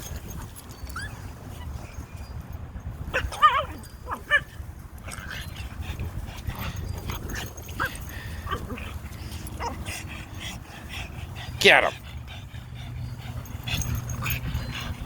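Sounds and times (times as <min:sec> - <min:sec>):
dog yipping: 0:03.1 - 0:04.5
dog whining: 0:03.2 - 0:04.5.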